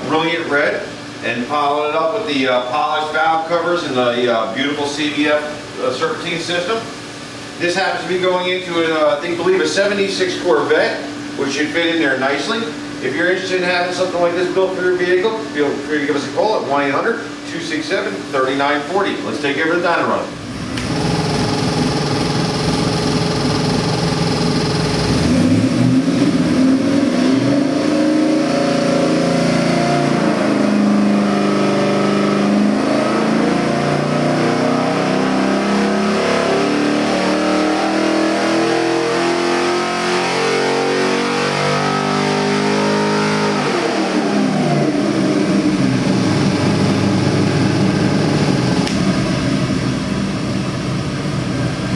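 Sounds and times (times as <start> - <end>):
engine revving under load: 20.3 - 51.9.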